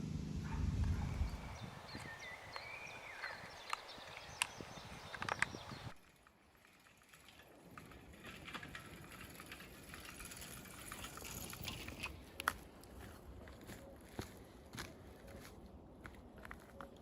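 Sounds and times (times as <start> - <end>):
small clicks: 3.6 - 12.6.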